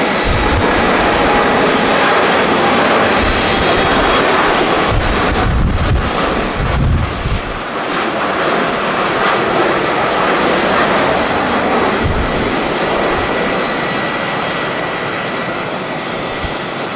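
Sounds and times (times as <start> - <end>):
jet engines rushing: 0.0 - 16.9
wind buffeting microphone: 0.0 - 16.9.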